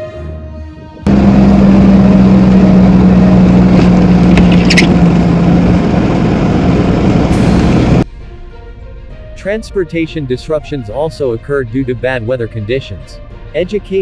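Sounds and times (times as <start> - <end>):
low hum: 1.1 - 8.0
vehicle engine rumbling: 1.1 - 8.0
brief clicks: 3.8 - 5.0.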